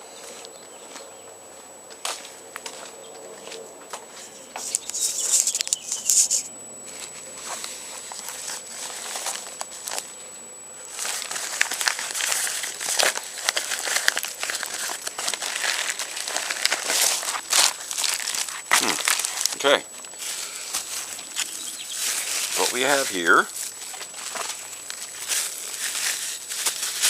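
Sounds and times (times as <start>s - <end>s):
packaging crinkling and tearing: 7.4s - 10.2s, 10.8s - 27.0s.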